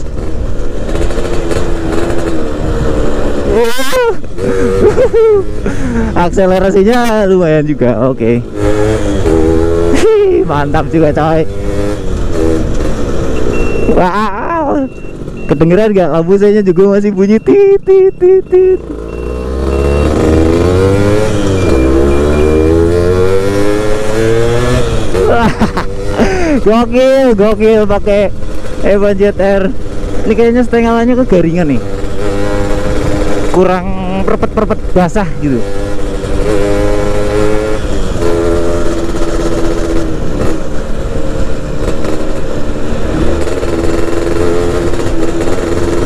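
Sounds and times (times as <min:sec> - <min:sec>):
two-stroke motorcycle engine accelerating: 0:00.0 - 0:46.0
turn-signal buzzer beeps: 0:13.4 - 0:14.0, 0:18.5 - 0:20.2, 0:21.2 - 0:22.8.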